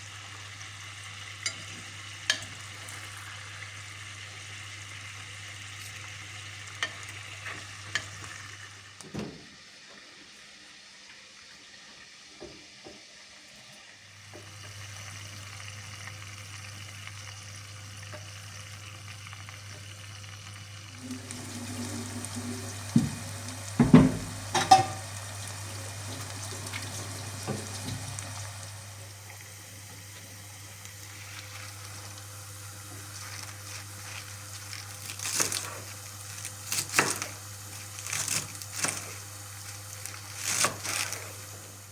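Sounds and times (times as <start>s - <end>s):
food sizzling in oil: 0.0s - 9.0s, 9.6s - 41.9s
utensil stirring food: 20.9s - 41.9s
utensil knocking on pan: 22.9s - 25.1s.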